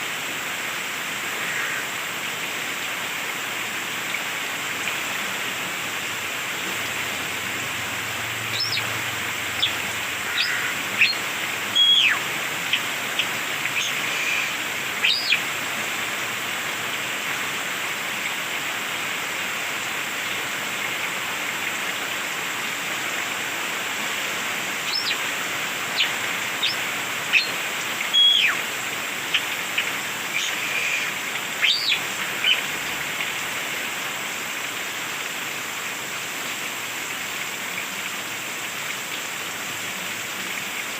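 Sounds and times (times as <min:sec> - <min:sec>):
steady hiss: 0:00.0 - 0:40.9
bird whistling and clicking: 0:11.8 - 0:12.2, 0:13.8 - 0:15.4, 0:28.1 - 0:28.6, 0:30.4 - 0:32.6.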